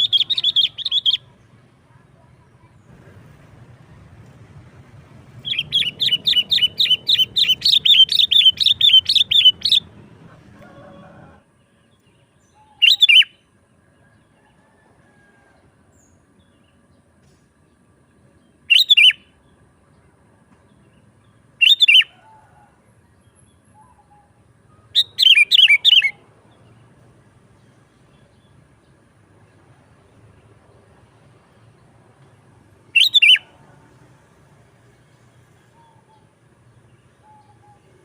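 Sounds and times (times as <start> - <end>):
bird singing chirping phrases: 0.0 - 2.9, 5.3 - 10.4, 11.6 - 13.6, 16.0 - 31.9, 32.9 - 34.0, 35.1 - 38.0.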